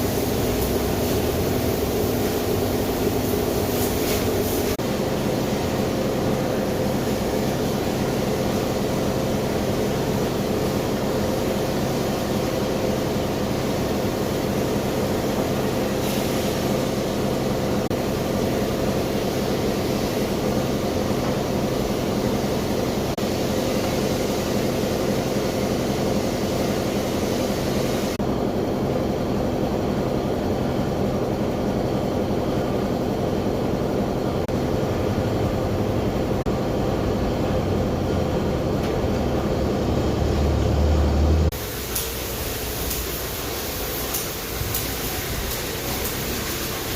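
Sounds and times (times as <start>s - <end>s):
hiss of water spray: 0.0s - 4.8s, 15.6s - 17.0s, 41.6s - 46.9s
pressure washer motor hum: 41.5s - 46.9s.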